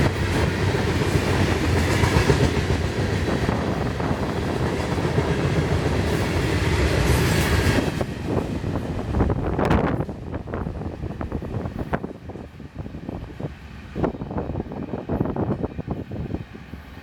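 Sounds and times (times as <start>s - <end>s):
freight cars clickety-clack: 0.0s - 10.6s.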